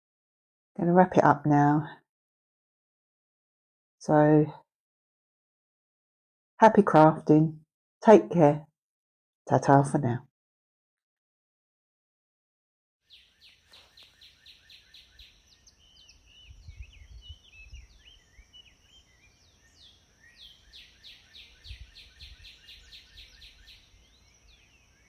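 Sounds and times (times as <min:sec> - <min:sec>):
birdsong with rapid high chirps: 0:13.1 - 0:25.0.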